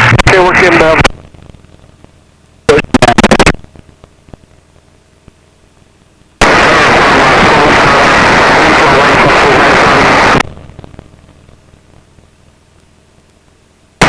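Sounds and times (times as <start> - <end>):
garbled radio transmission: 0.0 - 1.2, 2.6 - 4.4, 6.4 - 11.0
radio static and cockpit noise: 0.0 - 14.0.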